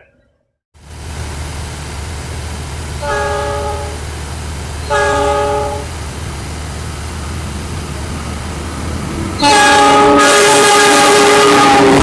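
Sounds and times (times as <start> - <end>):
low diesel rumble: 0.8 - 10.9
locomotive chime horn blast: 3.0 - 4.0, 4.8 - 6.0, 9.2 - 12.0.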